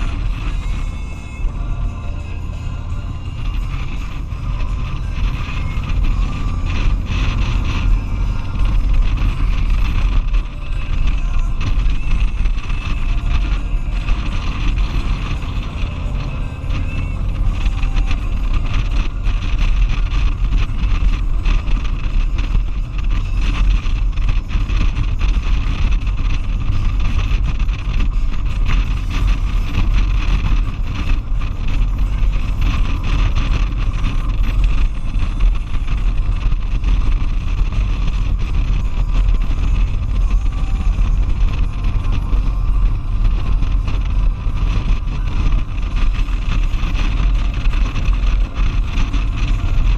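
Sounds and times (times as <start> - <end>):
motorcycle engine: 0.0 - 49.9
road noise: 0.0 - 49.9
wind rush buffeting camera: 0.0 - 49.9.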